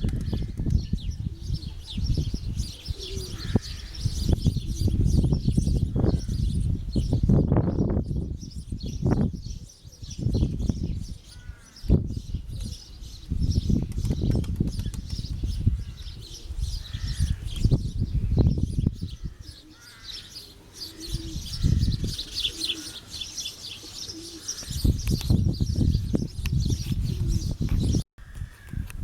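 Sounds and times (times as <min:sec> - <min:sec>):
wind buffeting microphone: 0:00.0 - 0:19.7, 0:21.0 - 0:23.0, 0:24.0 - 0:29.0
pigeons cooing: 0:00.1 - 0:05.0, 0:15.7 - 0:17.6, 0:19.2 - 0:26.2, 0:27.0 - 0:27.6
small birds chirping: 0:00.1 - 0:28.0
wings flapping: 0:13.9 - 0:15.4.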